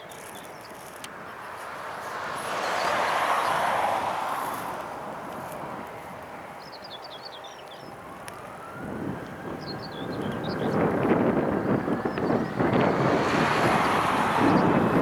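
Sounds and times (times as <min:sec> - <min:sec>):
jet airliner engine noise: 0:07.8 - 0:15.0.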